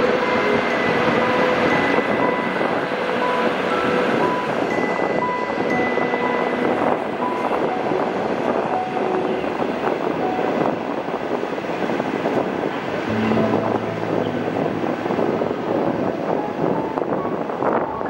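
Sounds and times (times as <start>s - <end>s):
train wheels rumbling on rails: 0.0s - 13.0s
low steady tone: 13.0s - 17.4s.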